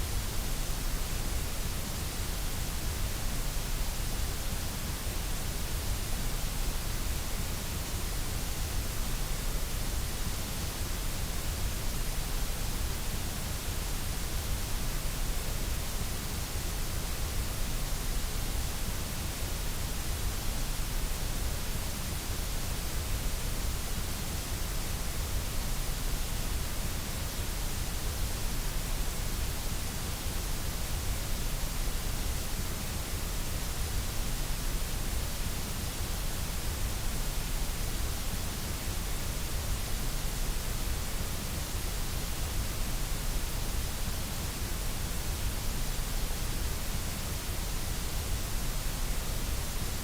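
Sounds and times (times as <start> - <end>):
white noise hiss: 0.0 - 50.0.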